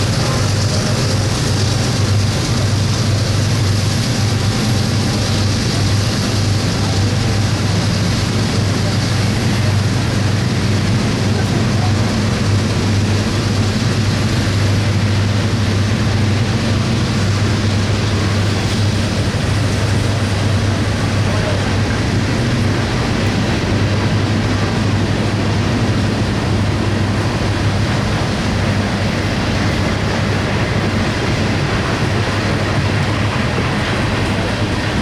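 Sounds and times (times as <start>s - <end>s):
freight train rumbling past: 0.0s - 35.0s.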